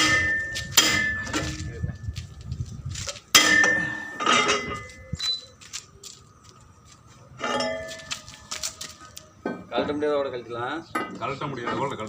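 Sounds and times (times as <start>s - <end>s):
metal clanking: 0.0s - 2.1s, 3.3s - 5.2s, 7.4s - 8.2s.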